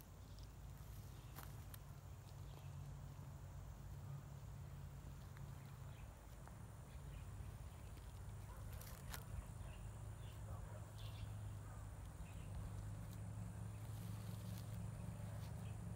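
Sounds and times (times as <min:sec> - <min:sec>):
low steady hum: 0:00.0 - 0:15.9
bird chirps: 0:06.8 - 0:13.0.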